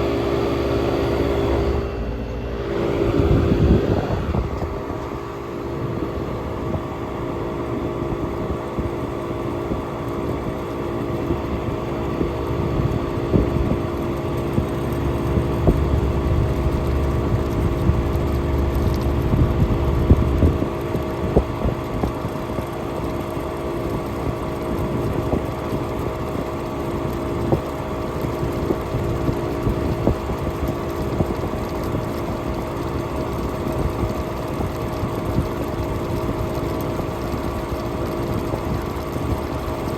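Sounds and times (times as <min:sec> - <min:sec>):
air conditioner humming: 0:00.0 - 0:39.9
low rumble: 0:00.9 - 0:06.7, 0:13.3 - 0:21.7.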